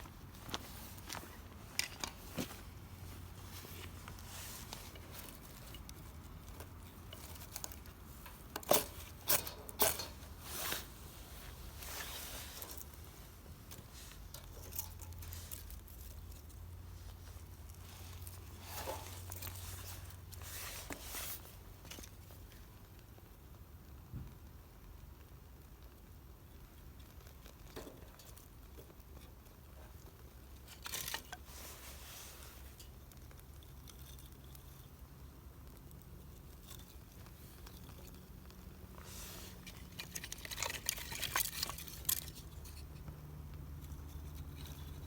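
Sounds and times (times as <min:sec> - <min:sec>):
small clicks taps and rustles: 0:12.6 - 0:45.0.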